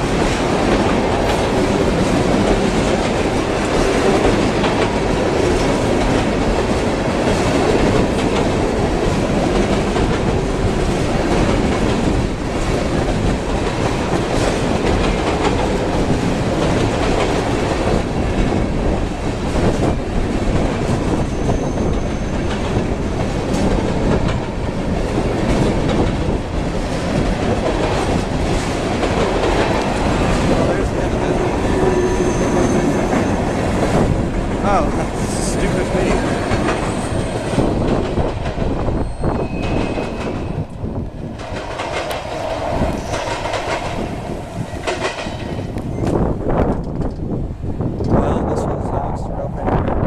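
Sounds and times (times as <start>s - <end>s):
wheels clacking over rail joints: 0.0s - 47.3s
freight train rumbling past: 0.0s - 50.0s.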